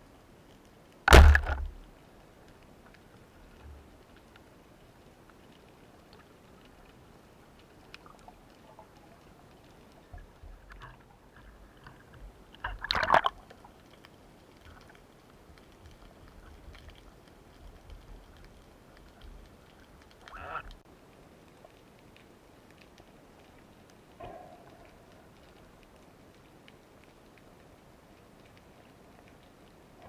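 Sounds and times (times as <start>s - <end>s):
water sloshing and gurgling: 1.1s - 1.9s, 7.6s - 13.9s
faint clicks: 1.6s - 30.0s.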